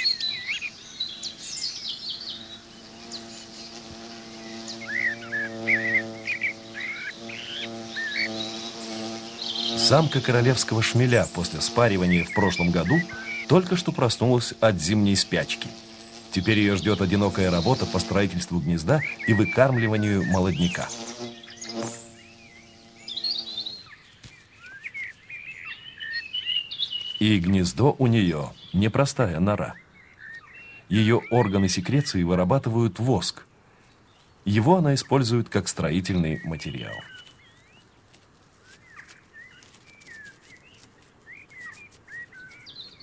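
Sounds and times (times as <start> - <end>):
soft background hiss: 0.0 - 24.7
songbirds chirping: 0.0 - 43.0.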